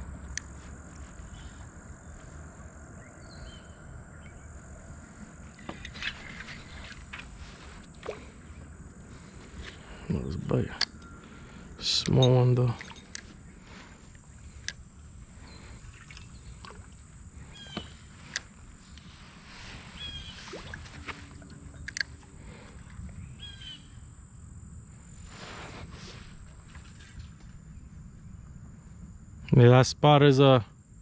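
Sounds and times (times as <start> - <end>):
high insect drone: 0.0 - 31.0
high bird chirps: 19.9 - 22.1, 23.2 - 24.0.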